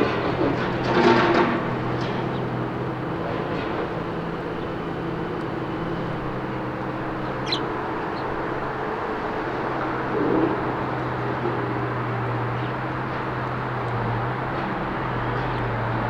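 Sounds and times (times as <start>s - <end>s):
road traffic hum: 0.0s - 16.0s
short high bird chirp: 7.4s - 7.7s.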